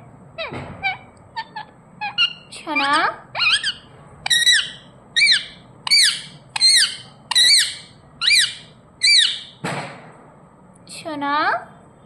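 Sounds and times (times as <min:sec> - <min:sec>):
parrot giving shrill calls: 0:00.4 - 0:09.6.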